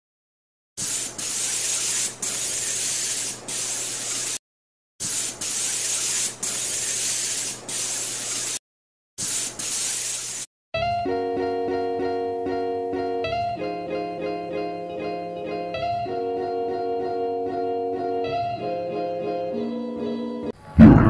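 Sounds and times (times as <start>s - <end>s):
spray paint can hissing: 0.8s - 4.4s, 5.0s - 8.6s, 9.2s - 10.5s.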